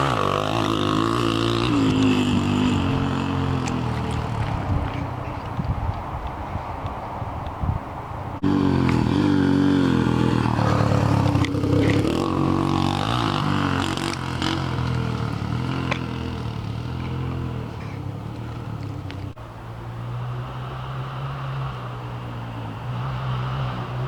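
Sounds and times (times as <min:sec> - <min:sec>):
motorcycle engine revving: 0:00.0 - 0:05.2, 0:08.4 - 0:19.4
sharp ticks and knocks: 0:13.9 - 0:16.3.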